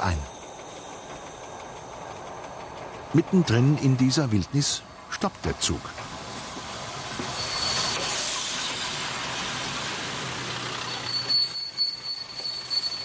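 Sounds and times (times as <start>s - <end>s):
high steady brake squeal: 0.0s - 2.6s, 6.9s - 9.1s, 10.3s - 13.0s
wheels rushing on rail: 0.0s - 13.0s.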